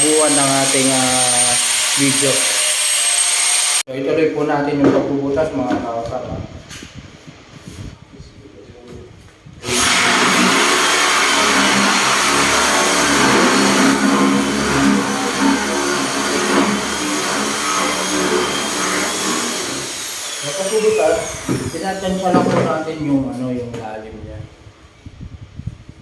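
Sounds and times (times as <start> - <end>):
electric drill boring wood: 0.0 - 3.8, 9.6 - 22.7.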